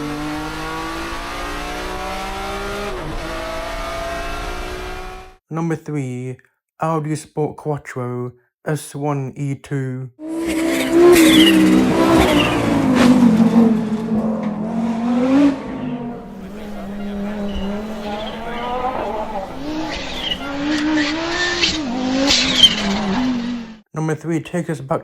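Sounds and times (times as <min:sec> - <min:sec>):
car engine revving: 0:00.0 - 0:05.4, 0:10.2 - 0:23.8.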